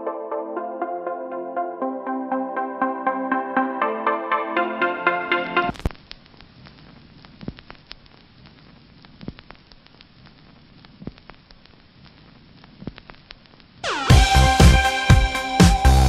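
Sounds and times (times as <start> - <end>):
low steady hiss: 3.8 - 16.0.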